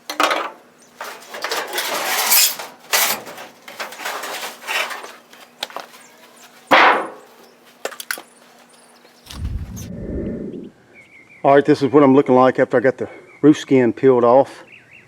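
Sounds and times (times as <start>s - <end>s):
sheet metal scraping and rattling: 0.2s - 5.2s.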